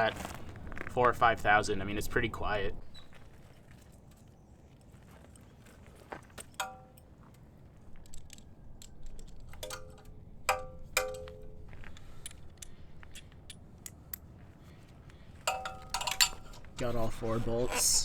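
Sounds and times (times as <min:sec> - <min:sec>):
metal tools clinking on metal: 0:06.4 - 0:14.2, 0:15.4 - 0:18.0.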